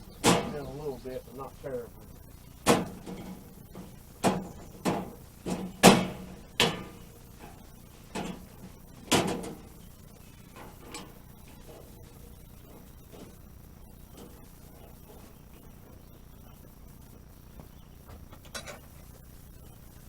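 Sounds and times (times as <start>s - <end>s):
hand tools knocking and clanking: 0.1s - 1.0s, 2.6s - 9.7s.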